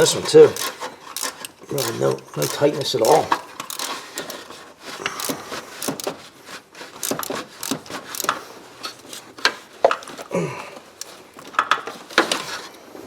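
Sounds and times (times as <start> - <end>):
hand tools clinking on metal: 0.0 - 4.4.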